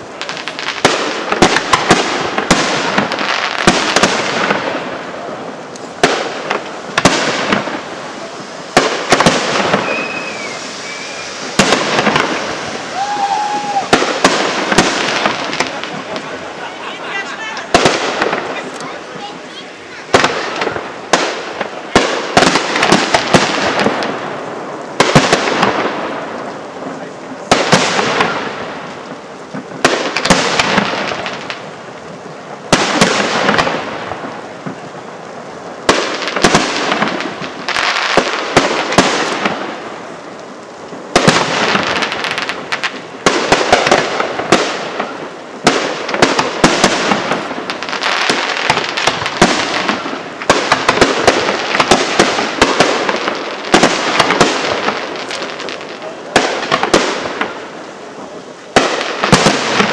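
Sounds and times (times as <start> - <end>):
firework shells bursting: 0.0 - 16.7, 40.4 - 57.7
firework crackling: 0.0 - 59.9.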